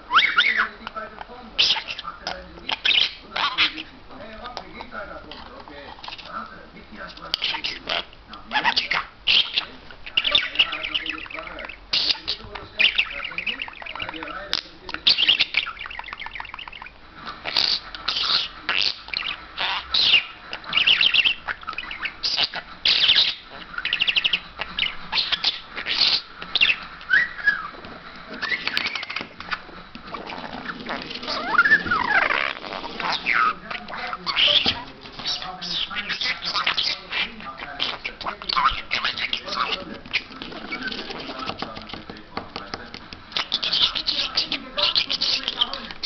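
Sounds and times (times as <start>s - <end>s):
talking bird squawking: 0.0s - 46.0s
bird whistling gliding notes: 22.9s - 27.8s.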